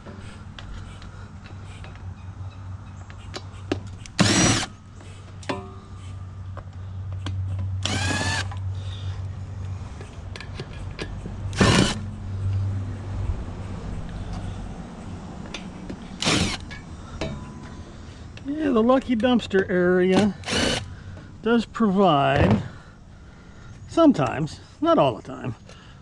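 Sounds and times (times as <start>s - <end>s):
screw gun motor whine: 4.1s - 4.7s, 7.8s - 8.5s, 11.5s - 12.0s, 16.2s - 16.6s, 20.4s - 20.9s.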